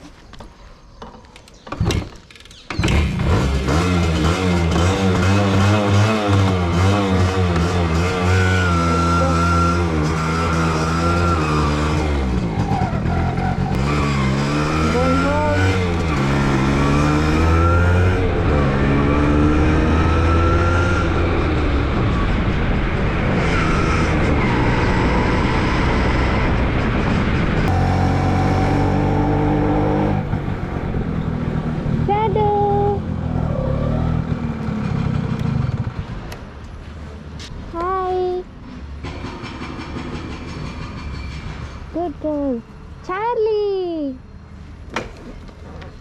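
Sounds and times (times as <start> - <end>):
motorcycle engine revving: 1.7 - 36.6.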